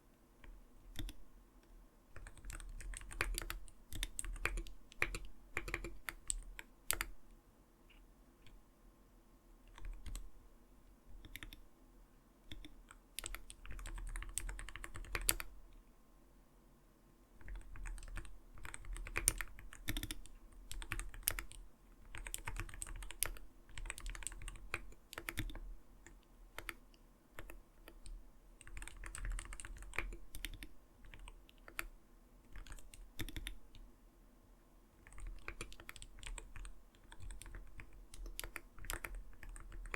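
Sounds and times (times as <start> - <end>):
keyboard typing clacks: 2.2 - 7.1, 12.5 - 15.4, 17.4 - 25.6, 27.4 - 31.9, 35.1 - 39.9.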